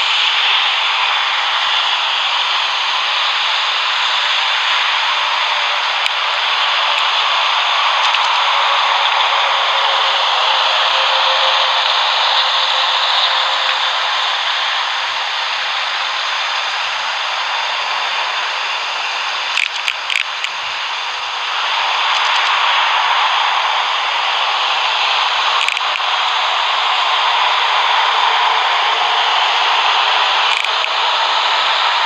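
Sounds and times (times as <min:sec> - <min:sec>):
loud jet engine roar: 0:00.0 - 0:32.0
short clicks: 0:19.5 - 0:20.6, 0:25.6 - 0:26.0, 0:30.5 - 0:30.9.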